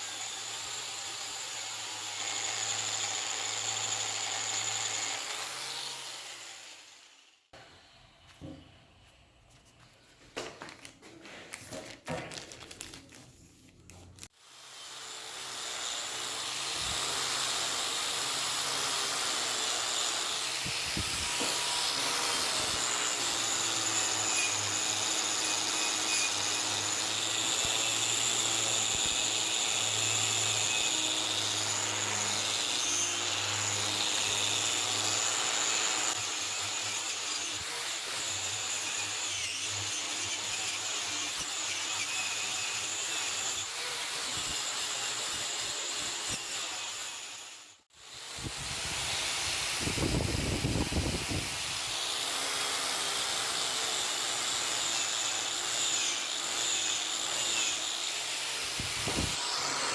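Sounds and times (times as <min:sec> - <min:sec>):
power tool whining: 0:14.9 - 0:59.9.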